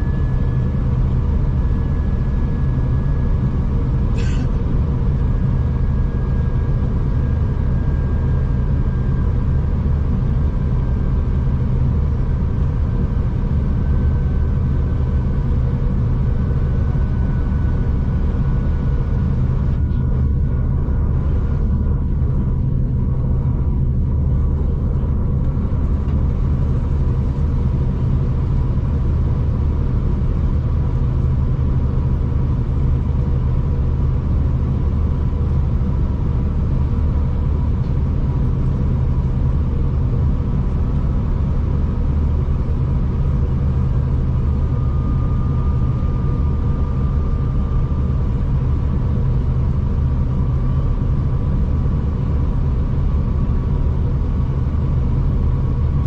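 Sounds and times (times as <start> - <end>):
train running rumble: 2.4 - 5.6, 18.2 - 47.1
faint higher whine: 41.2 - 51.6.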